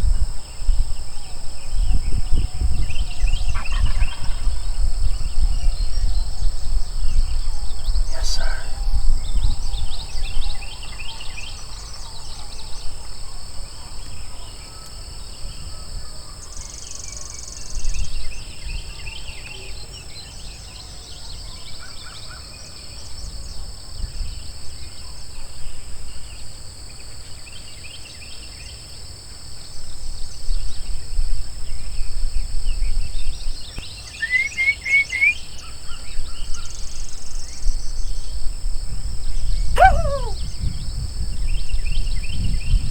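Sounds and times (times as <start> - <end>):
wind rumble on microphone: 0.0 - 11.6, 37.5 - 42.9
bird chirps: 39.8 - 40.4.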